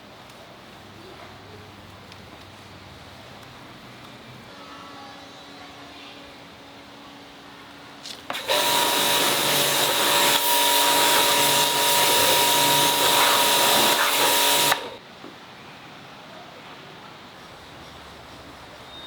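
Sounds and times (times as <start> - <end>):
power tool hissing and whining: 8.2 - 15.0.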